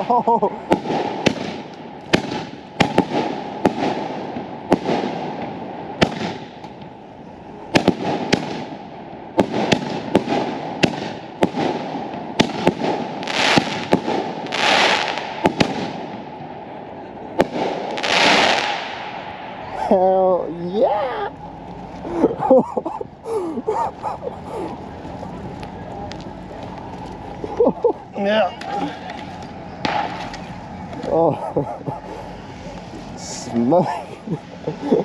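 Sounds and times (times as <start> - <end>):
fireworks bangs and pops: 0.0 - 7.0, 7.7 - 16.5, 17.4 - 19.2, 28.6 - 30.6
fireworks hissing and crackling: 0.0 - 22.2, 23.0 - 35.0.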